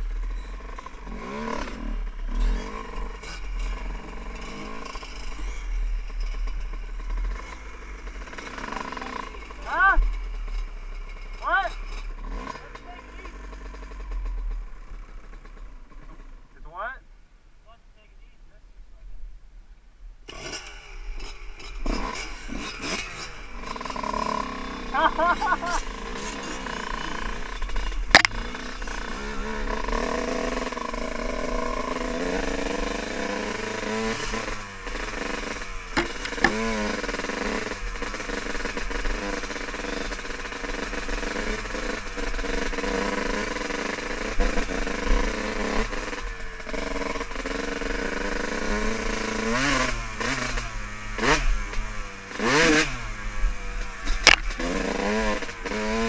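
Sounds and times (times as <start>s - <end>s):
dirt bike engine revving: 0.0s - 17.0s, 20.2s - 56.0s
sharp knocks: 36.0s - 36.7s.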